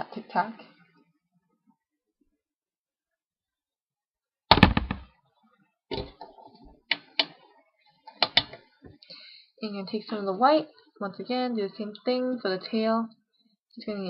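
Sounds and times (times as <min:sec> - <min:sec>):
loud knock: 0:04.5 - 0:05.1.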